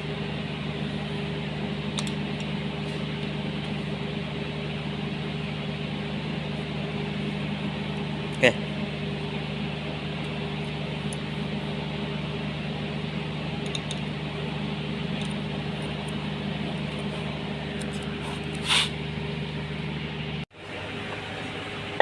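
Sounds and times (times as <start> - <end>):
machine hum: 0.0 - 22.0
brief hiss: 18.6 - 19.0.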